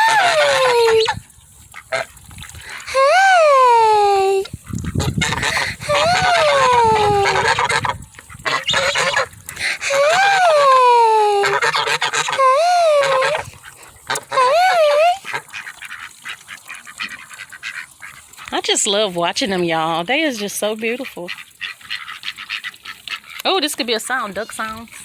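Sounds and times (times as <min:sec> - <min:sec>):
goose calling: 0:00.0 - 0:01.2, 0:04.8 - 0:18.7, 0:21.0 - 0:23.5.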